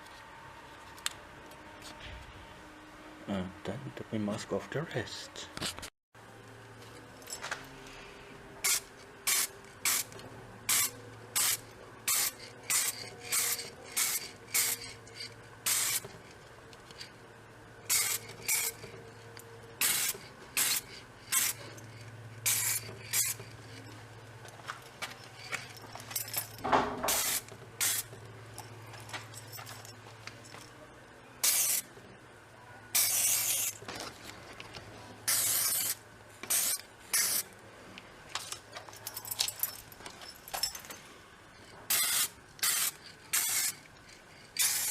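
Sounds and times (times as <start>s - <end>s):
spray paint can hissing: 8.6s - 10.1s, 10.7s - 14.9s, 15.6s - 16.1s, 17.9s - 18.8s, 19.8s - 21.6s, 22.4s - 23.4s, 27.1s - 28.1s, 31.4s - 31.9s, 33.0s - 33.8s, 35.3s - 37.4s, 41.9s - 43.8s, 44.6s - 44.9s.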